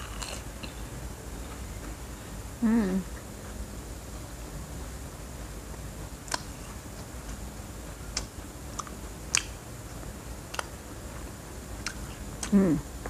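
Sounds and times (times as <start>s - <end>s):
crunchy snack chewing: 0.0s - 0.8s.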